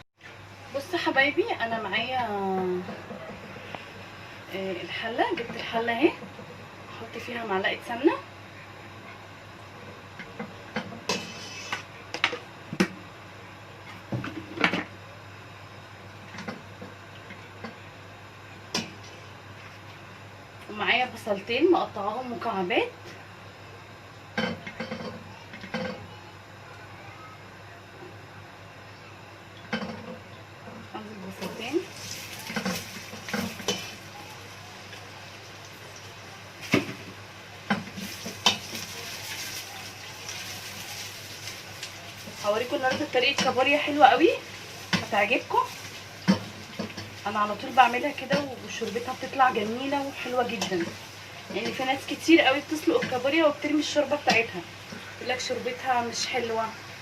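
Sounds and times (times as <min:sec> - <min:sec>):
onions sizzling in a pot: 0:09.6 - 0:13.3, 0:30.8 - 0:57.0.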